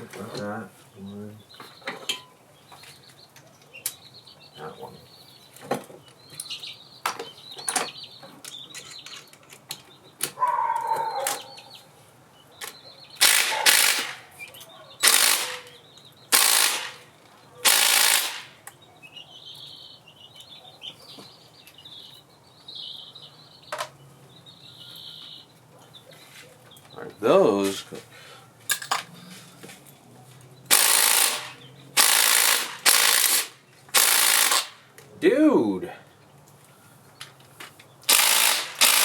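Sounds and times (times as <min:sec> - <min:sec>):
impact wrench spinning: 0:13.2 - 0:14.2, 0:15.0 - 0:15.6, 0:16.4 - 0:17.0, 0:17.7 - 0:18.5, 0:30.7 - 0:34.8, 0:38.1 - 0:39.0
tools clicking on bolts: 0:13.2 - 0:17.0, 0:17.6 - 0:18.8, 0:30.7 - 0:34.8, 0:38.1 - 0:39.0.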